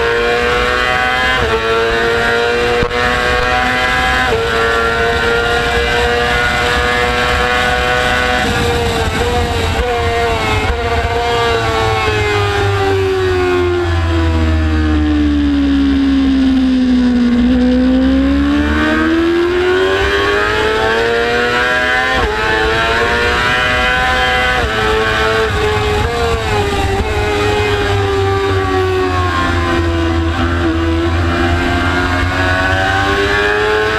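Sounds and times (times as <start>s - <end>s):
motorcycle engine accelerating: 0.0s - 33.9s
wind rush: 5.4s - 13.4s, 22.1s - 33.3s.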